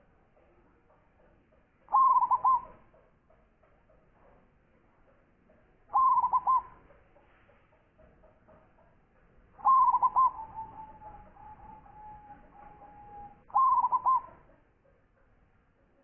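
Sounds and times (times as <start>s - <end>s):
dove cooing: 1.9s - 2.8s, 5.9s - 6.8s, 9.6s - 14.5s
dove rolling trill: 1.9s - 2.8s, 5.9s - 6.8s, 9.6s - 14.6s.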